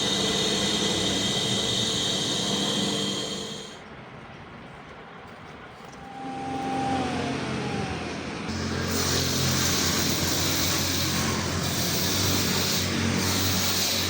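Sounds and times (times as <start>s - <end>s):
loud high hiss: 0.0s - 3.8s, 8.5s - 14.0s
machine motor humming: 0.0s - 3.8s, 6.1s - 14.0s.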